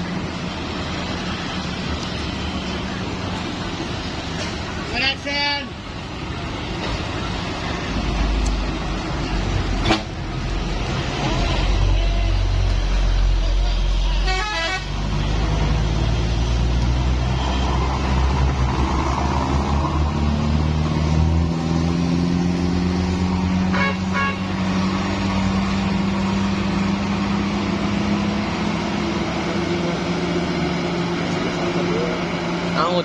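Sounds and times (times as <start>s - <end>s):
heavy truck engine pulling: 0.0s - 33.0s
truck horn toot: 13.9s - 15.0s, 23.6s - 24.6s.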